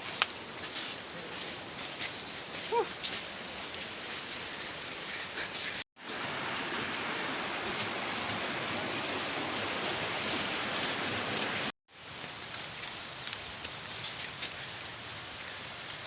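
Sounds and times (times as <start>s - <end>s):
waterfall rushing: 6.0s - 11.7s.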